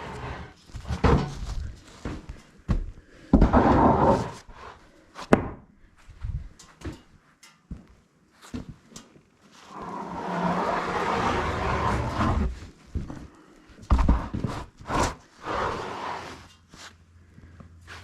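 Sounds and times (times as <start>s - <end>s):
noisy scrape: 0.0s - 0.6s, 3.4s - 4.8s, 9.7s - 12.7s, 14.8s - 16.9s.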